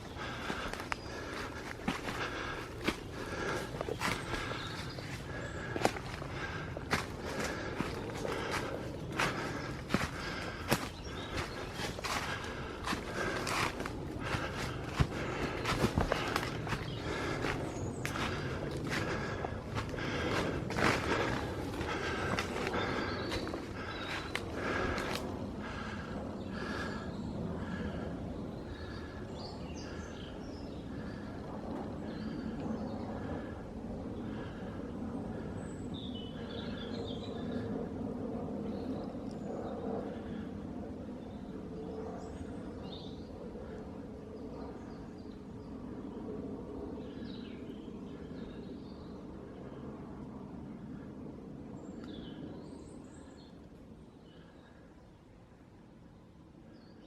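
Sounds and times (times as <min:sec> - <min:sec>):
footsteps crunching through undergrowth: 0:00.0 - 0:25.3.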